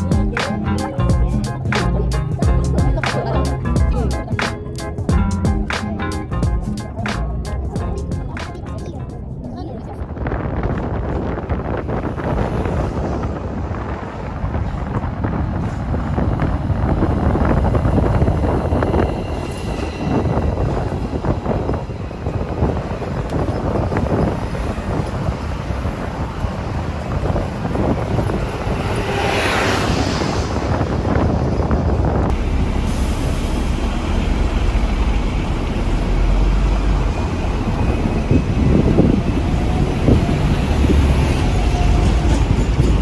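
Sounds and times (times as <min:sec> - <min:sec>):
moving vehicle rumble: 0:00.0 - 0:43.0
rushing whoosh: 0:10.1 - 0:43.0.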